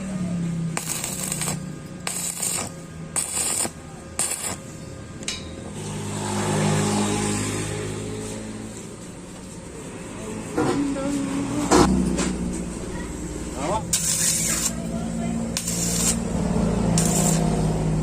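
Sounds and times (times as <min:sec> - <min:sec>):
vehicle engine passing by: 0:05.7 - 0:18.0.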